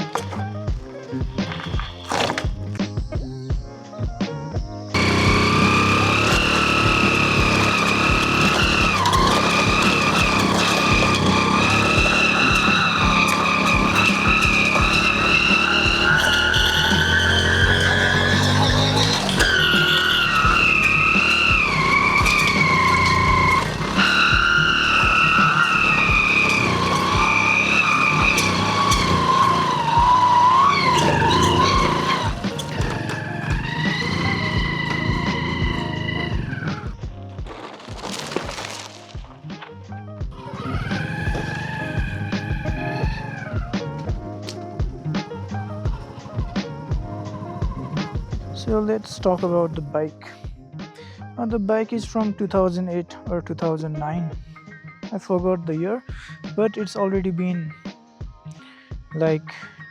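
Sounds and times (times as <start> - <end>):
motorcycle engine running: 4.6 - 39.4, 40.2 - 49.9.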